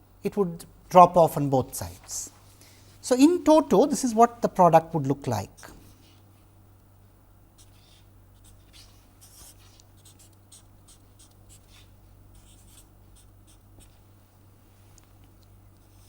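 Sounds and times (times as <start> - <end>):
pen scratching on paper: 7.6 - 14.0.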